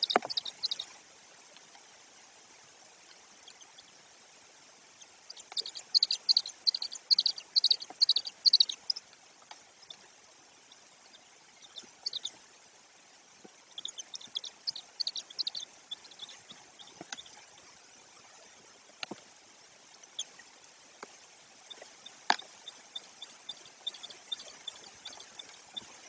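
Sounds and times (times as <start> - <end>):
rain hissing in forest: 0.0 - 26.0.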